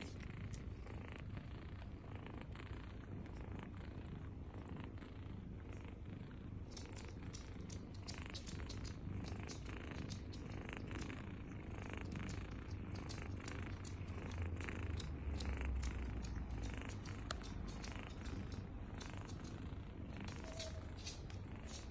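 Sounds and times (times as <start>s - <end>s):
kittens suckling clicks: 0.0s - 0.9s, 6.6s - 21.9s
cat purring: 0.0s - 21.9s.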